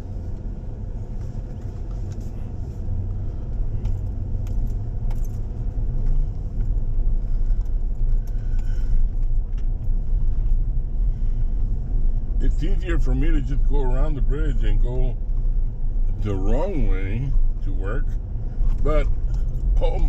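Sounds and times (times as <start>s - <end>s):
truck engine and road rumble: 0.0s - 20.0s
light clicks and rattles: 1.1s - 10.7s.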